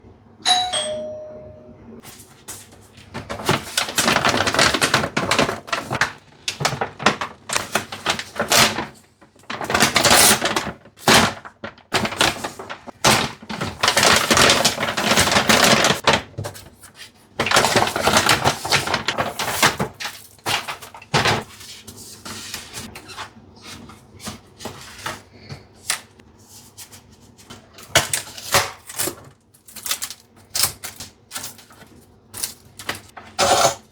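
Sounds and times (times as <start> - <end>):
paper and plastic rustling: 2.0 - 33.9.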